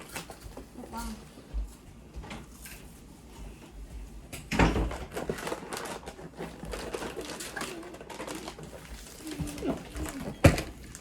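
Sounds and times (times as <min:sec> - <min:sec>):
snack packaging crinkling: 0:04.9 - 0:11.0.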